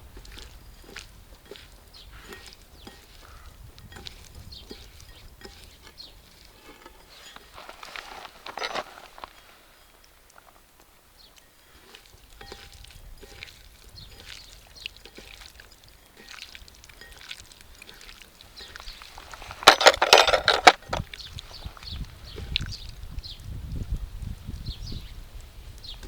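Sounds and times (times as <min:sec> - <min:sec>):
low wind rumble: 0:19.2 - 0:26.0
light clicks and knocks: 0:19.3 - 0:21.1.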